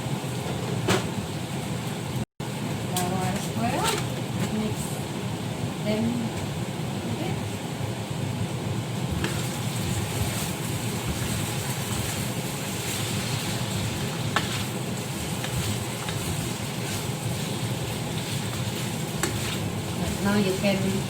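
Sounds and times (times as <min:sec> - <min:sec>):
food sizzling in a frying pan: 0:08.9 - 0:21.0.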